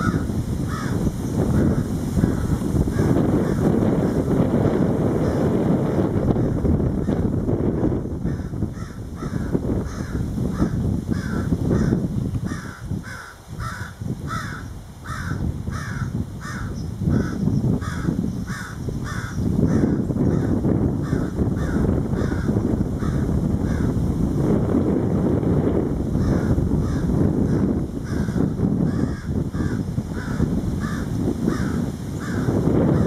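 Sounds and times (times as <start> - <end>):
wind buffeting microphone: 0.0 - 33.0
bird calling repeatedly: 8.4 - 22.4.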